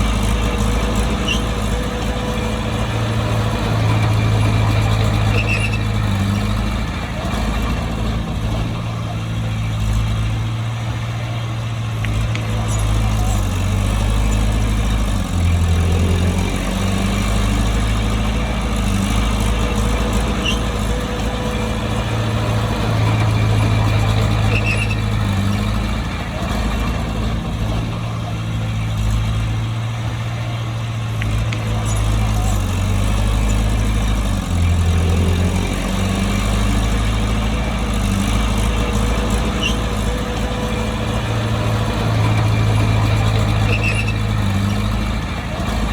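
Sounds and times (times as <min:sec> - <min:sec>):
bulldozer diesel engine: 0:00.0 - 0:45.9.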